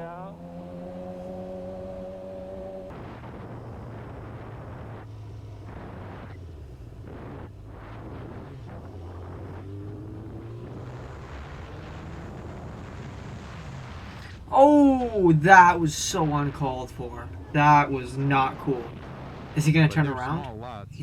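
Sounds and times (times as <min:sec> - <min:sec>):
motorcycle engine drone: 0:00.0 - 0:21.0
wind noise on microphone: 0:02.9 - 0:14.5.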